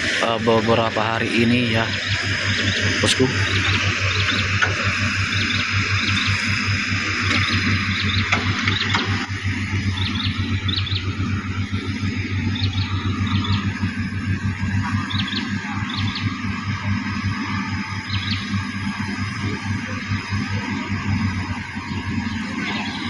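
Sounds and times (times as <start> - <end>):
heavy engine humming: 0.0 - 23.0
high bird chirps: 1.8 - 6.7, 7.3 - 11.8, 12.4 - 14.0, 14.8 - 16.4, 18.0 - 18.6.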